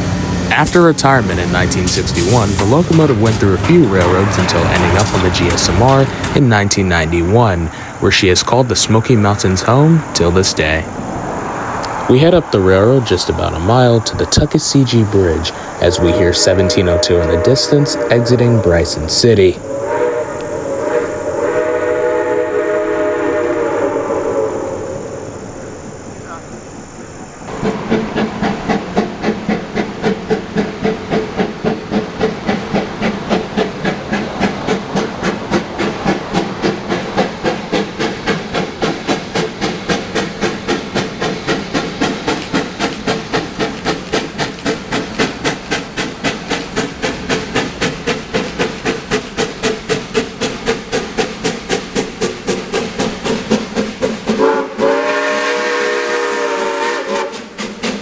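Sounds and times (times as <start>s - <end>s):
steam locomotive exhaust chuffing: 0.0s - 25.4s, 27.2s - 58.0s
steam whistle blowing: 15.1s - 25.4s, 54.4s - 57.5s.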